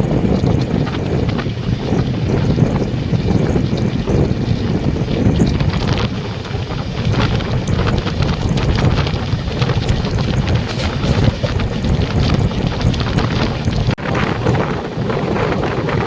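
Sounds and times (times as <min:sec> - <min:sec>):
wind buffeting microphone: 0:00.0 - 0:16.0
train running noise: 0:10.3 - 0:13.9
clicks and rattles: 0:10.6 - 0:12.0.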